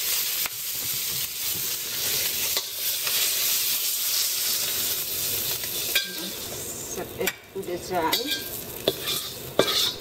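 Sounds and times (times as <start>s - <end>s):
shrimp sizzling in hot oil: 0.0s - 10.0s
metal spatula scraping pan: 8.0s - 10.0s.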